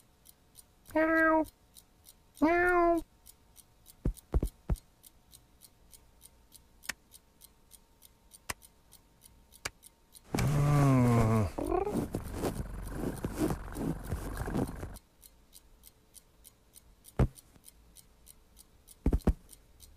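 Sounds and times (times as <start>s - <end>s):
soft thuds and taps: 4.0s - 4.8s, 17.2s - 17.4s, 19.0s - 19.4s
cartoon vocal cry: 10.5s - 12.0s.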